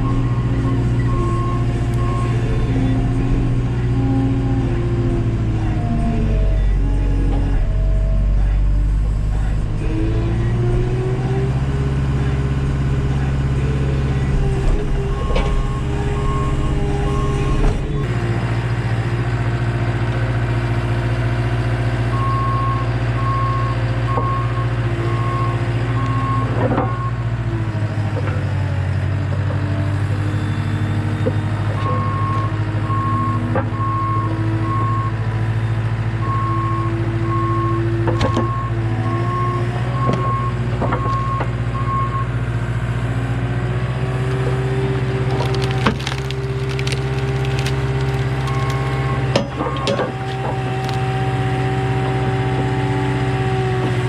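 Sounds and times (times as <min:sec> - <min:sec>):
reversing alarm beeping: 0:00.0 - 0:04.0, 0:14.0 - 0:18.1, 0:30.3 - 0:42.3
skid steer engine running: 0:00.0 - 0:54.0.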